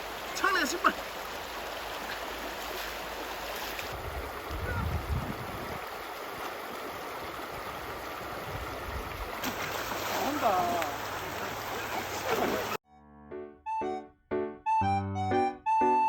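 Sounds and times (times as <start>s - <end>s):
stream water rushing: 0.0s - 12.8s
wind buffeting microphone: 3.9s - 6.1s, 7.4s - 9.4s.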